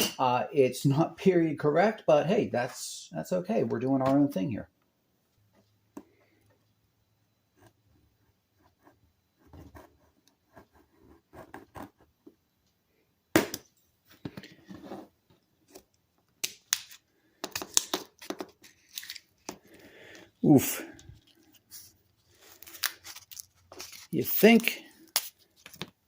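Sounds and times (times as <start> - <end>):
coating tearing and scraping: 21.0 - 24.2.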